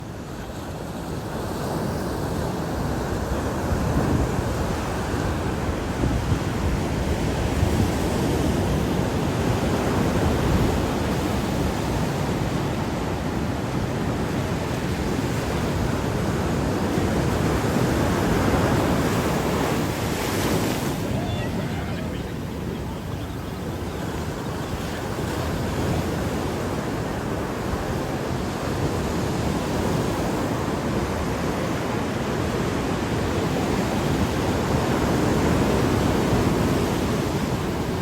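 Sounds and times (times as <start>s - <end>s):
ocean surf washing on beach: 0.0s - 38.0s
wind buffeting microphone: 2.9s - 38.0s.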